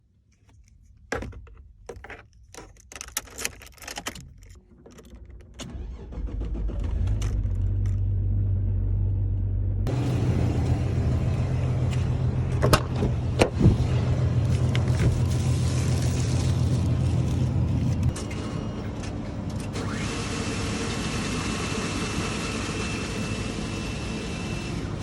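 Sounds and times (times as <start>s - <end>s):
clicks and knocks: 0.5s - 5.7s
keys jangling: 2.4s - 5.6s
car engine running: 4.8s - 20.2s.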